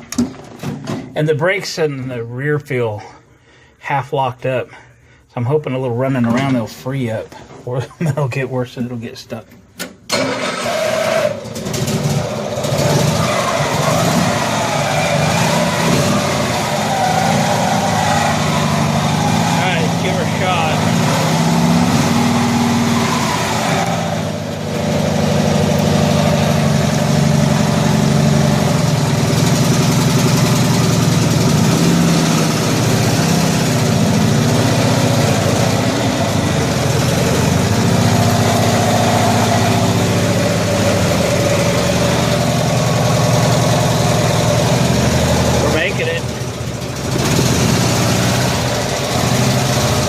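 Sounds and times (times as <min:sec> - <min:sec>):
vehicle engine running at low speed: 0:23.7 - 0:50.0.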